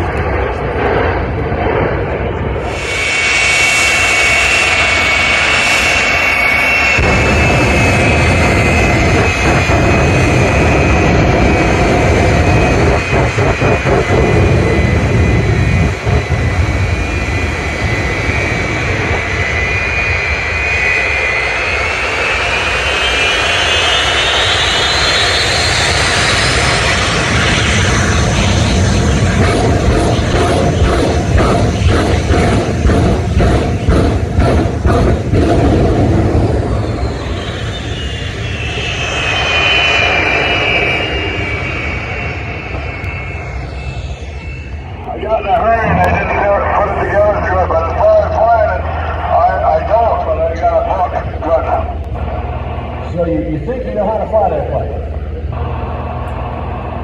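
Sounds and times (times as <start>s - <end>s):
jet engine roar with turbine whine: 0.0s - 57.0s.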